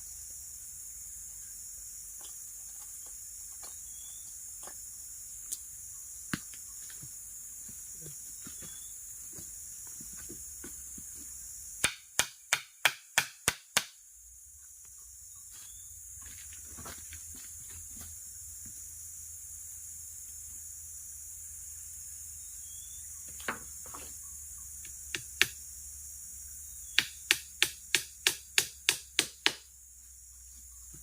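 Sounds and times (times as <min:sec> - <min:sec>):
forest insects droning: 0:00.0 - 0:31.0
sharp chopping strokes: 0:11.8 - 0:14.0, 0:27.0 - 0:29.7.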